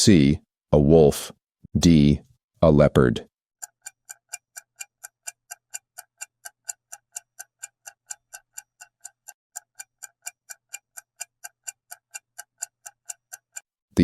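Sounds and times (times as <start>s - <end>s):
fast clock-like timer ticks: 3.6s - 13.8s.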